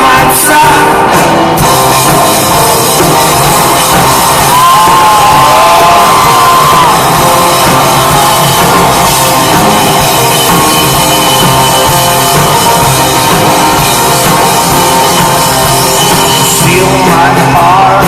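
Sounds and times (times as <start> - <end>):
person singing: 0.0 - 1.4, 14.8 - 18.0
driving drum beat: 0.0 - 18.0
live folk-rock band playing: 0.0 - 18.0.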